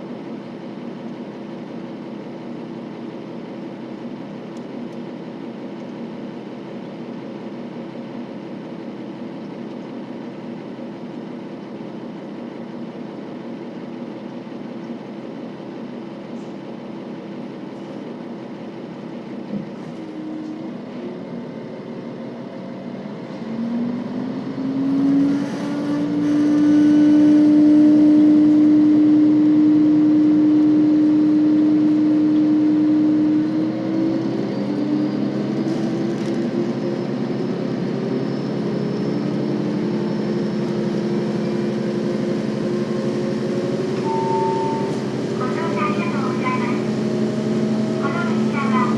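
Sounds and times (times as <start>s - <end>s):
diesel railcar engine revving: 0.0s - 48.9s.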